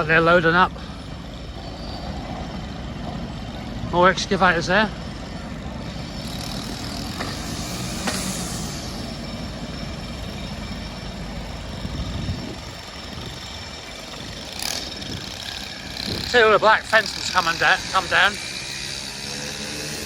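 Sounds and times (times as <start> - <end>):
diesel engines rumbling: 0.0 - 20.0
air hiss: 6.8 - 9.1.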